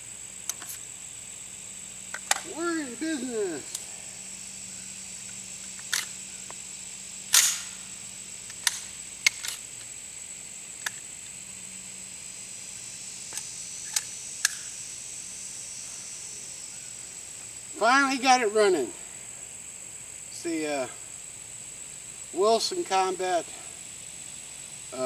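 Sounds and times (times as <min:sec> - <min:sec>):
metallic gun clicks and clacks: 0:07.3 - 0:07.8.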